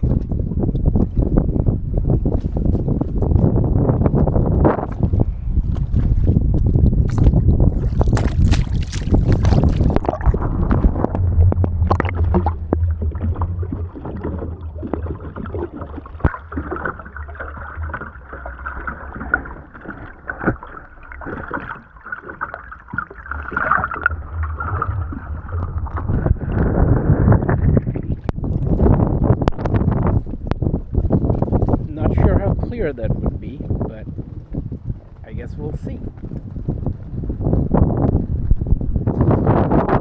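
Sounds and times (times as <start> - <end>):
muffled underwater sloshing: 0.0 - 40.0
wind on microphone: 0.0 - 40.0
water splashing: 4.8 - 36.4.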